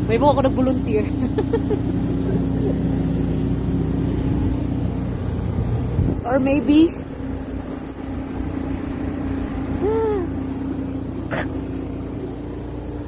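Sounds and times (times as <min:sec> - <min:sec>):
truck engine idling: 0:00.0 - 0:13.0
person humming: 0:09.8 - 0:10.4.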